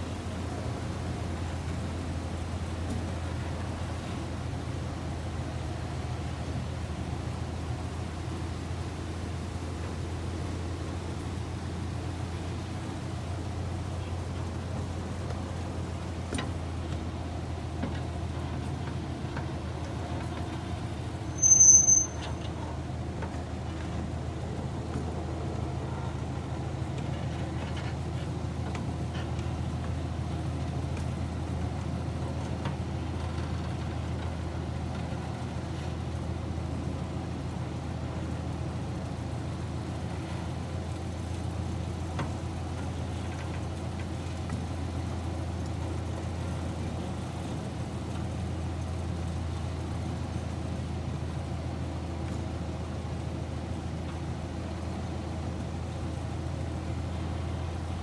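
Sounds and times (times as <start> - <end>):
miniature train rumbling on track: 0.0 - 58.0
shrill high-pitched squeal: 21.3 - 22.2.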